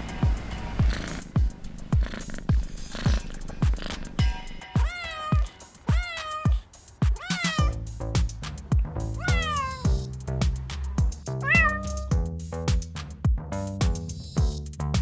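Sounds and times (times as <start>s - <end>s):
electronic music with kick drum: 0.0s - 15.0s
cat meowing: 4.8s - 7.8s, 9.1s - 9.9s, 11.4s - 12.1s.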